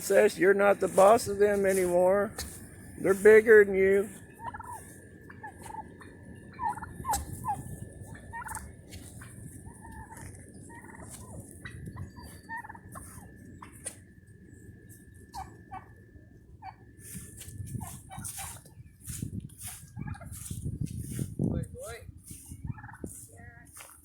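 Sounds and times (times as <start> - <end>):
young turkeys peeping and yelping: 0.0 - 24.0.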